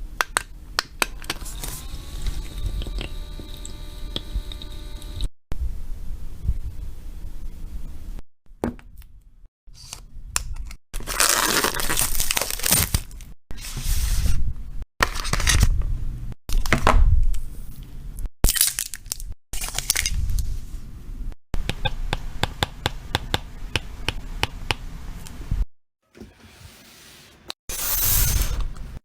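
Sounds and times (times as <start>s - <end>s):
packaging tearing and crinkling: 11.0s - 13.2s, 27.7s - 28.8s.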